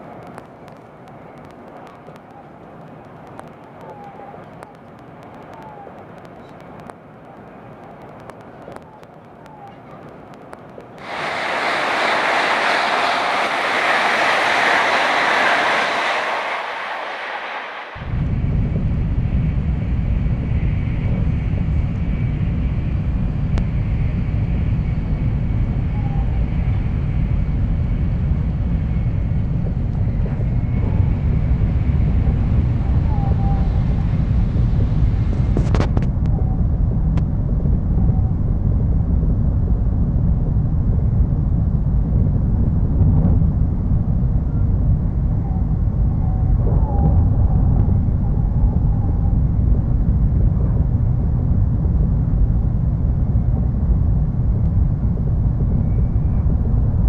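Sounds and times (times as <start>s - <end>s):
high hiss: 11.0s - 18.7s
train cabin rumble: 11.0s - 23.8s, 25.7s - 40.1s.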